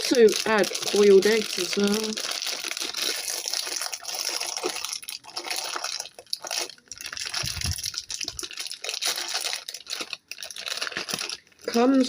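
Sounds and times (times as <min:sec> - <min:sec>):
heavy low rumble: 0:06.9 - 0:08.5.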